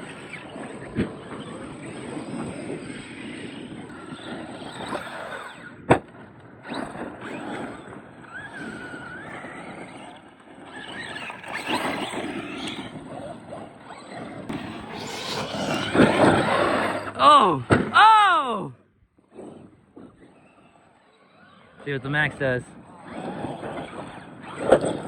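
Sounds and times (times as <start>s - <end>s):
rc truck motors whining: 0.0s - 18.5s, 19.1s - 25.0s
tyres running over dirt: 5.1s - 18.7s.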